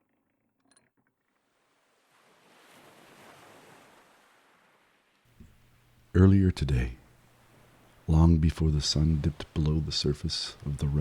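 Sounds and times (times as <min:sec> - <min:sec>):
faint ocean wave washing: 0:02.0 - 0:05.8.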